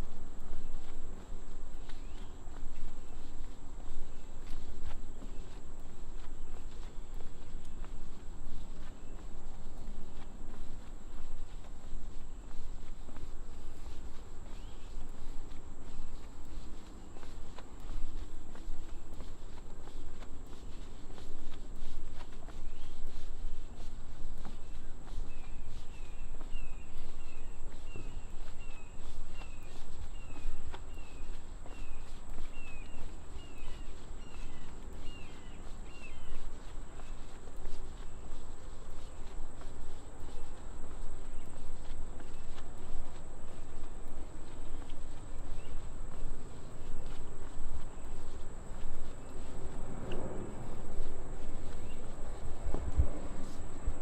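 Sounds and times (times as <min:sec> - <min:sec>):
footstep clicks: 0:00.0 - 0:54.0
insects droning: 0:00.0 - 0:54.0
bird chirping: 0:01.8 - 0:03.4, 0:13.8 - 0:15.3, 0:24.6 - 0:37.3, 0:43.4 - 0:46.0, 0:51.0 - 0:52.4.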